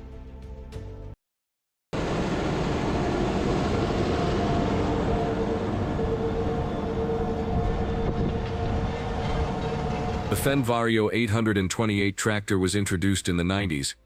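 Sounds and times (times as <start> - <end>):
steady whine: 2.0 - 11.1
tractor diesel engine running: 2.0 - 11.4.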